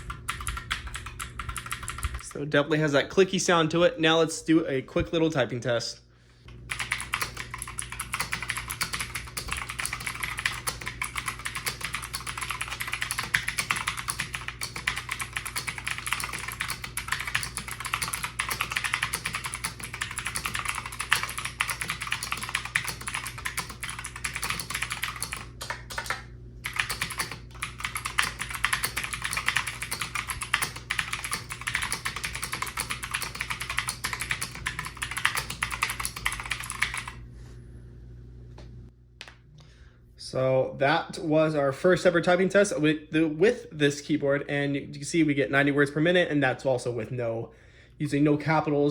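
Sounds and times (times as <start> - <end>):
clicky mechanical keyboard typing: 0.0 - 2.2, 6.7 - 37.2.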